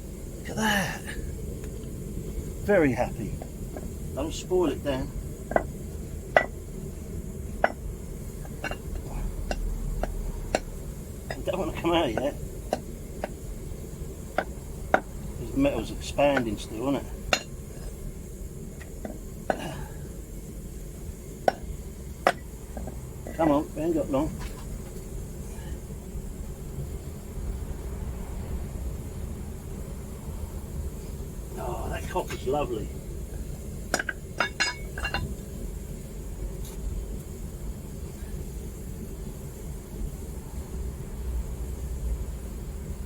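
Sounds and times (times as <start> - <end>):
propane burner roar: 0.0 - 43.0
metallic knocks with ring: 6.3 - 6.6, 7.6 - 7.8, 17.3 - 17.5, 21.5 - 23.5, 33.9 - 35.3
metallic clinks: 33.9 - 35.3.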